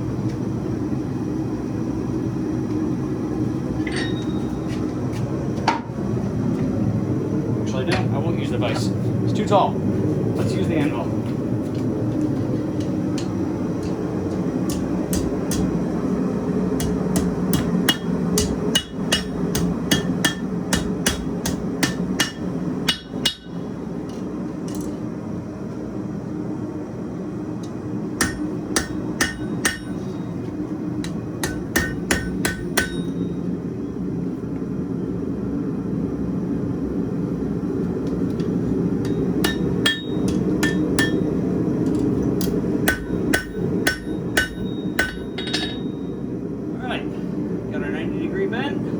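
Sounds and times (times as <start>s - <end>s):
forge burner running: 0.0s - 48.9s
hammer striking steel on anvil: 3.8s - 4.8s, 13.2s - 15.8s, 16.8s - 23.6s, 28.2s - 30.2s, 31.0s - 33.3s, 39.0s - 41.4s, 42.4s - 46.0s.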